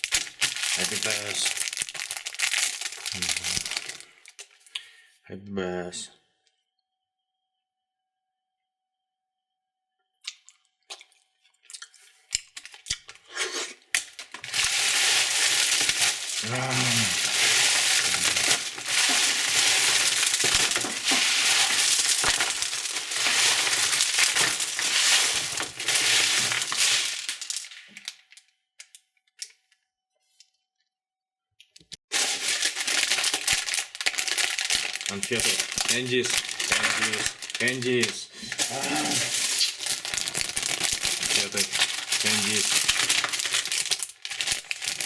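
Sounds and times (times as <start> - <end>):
packaging crackling and tearing: 0.0 - 4.6, 12.4 - 13.2, 13.8 - 29.6, 32.1 - 45.0
plastic wrappers crinkling: 0.0 - 4.8, 11.6 - 29.7, 32.1 - 45.0.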